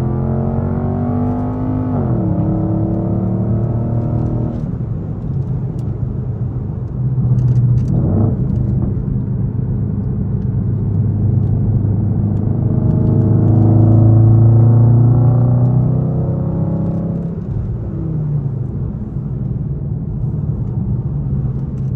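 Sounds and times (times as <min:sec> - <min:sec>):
car exhaust rumbling: 0:00.0 - 0:21.9.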